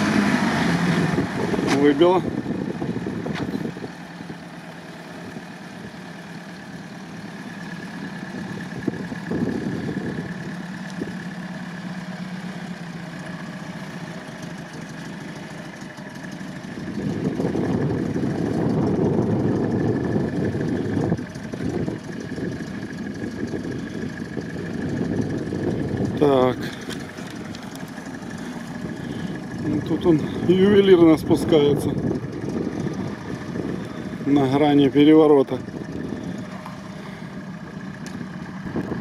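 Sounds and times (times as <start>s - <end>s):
truck engine running: 0.0s - 39.0s.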